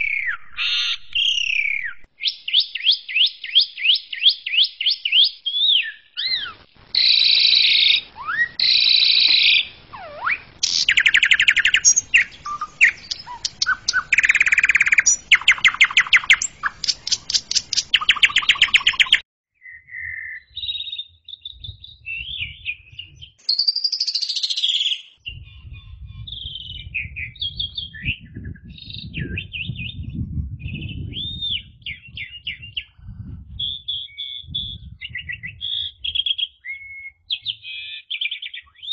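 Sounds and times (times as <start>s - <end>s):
starling singing: 4.2s - 19.2s
low rumble: 25.3s - 35.9s.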